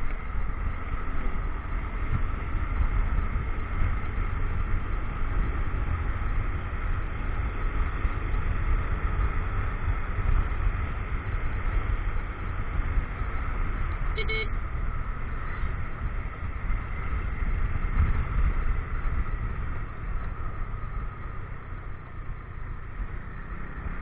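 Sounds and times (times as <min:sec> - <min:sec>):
motorcycle engine rumble: 0:00.0 - 0:24.0
wind noise: 0:15.6 - 0:21.2.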